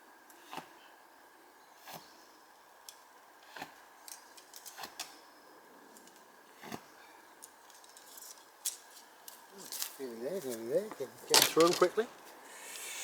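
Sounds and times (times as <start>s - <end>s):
light clicks and knocks of arrows: 2.8s - 5.2s, 5.9s - 13.0s.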